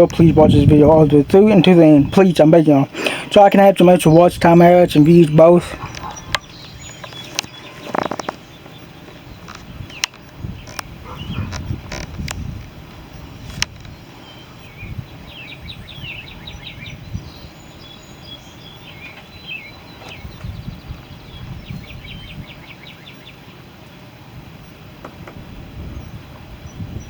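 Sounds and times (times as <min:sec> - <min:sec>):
bird trilling chirps: 0:01.5 - 0:11.8, 0:13.9 - 0:23.6.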